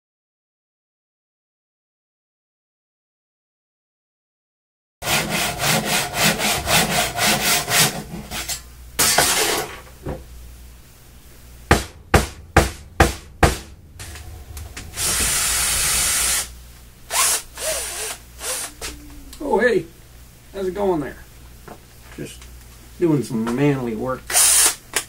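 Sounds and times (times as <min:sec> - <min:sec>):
rasping sawing strokes: 0:05.0 - 0:09.6
sharp knocks: 0:11.7 - 0:15.4
even rushing noise: 0:12.0 - 0:21.4.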